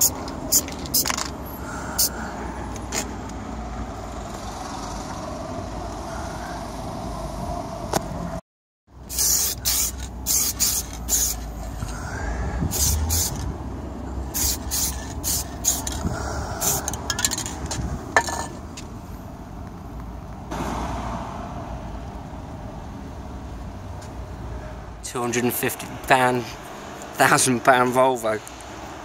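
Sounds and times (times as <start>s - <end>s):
short hissing spray bursts: 9.1s - 11.6s, 12.7s - 13.4s, 14.3s - 16.0s.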